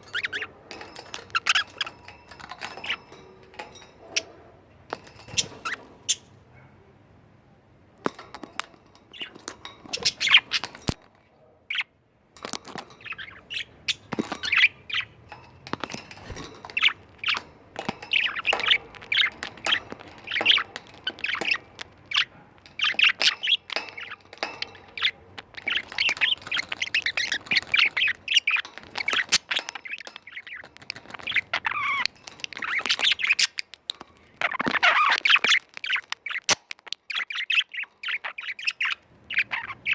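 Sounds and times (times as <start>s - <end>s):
budgerigars chattering: 0.0s - 2.1s, 9.1s - 11.0s, 18.0s - 33.8s, 34.4s - 39.9s.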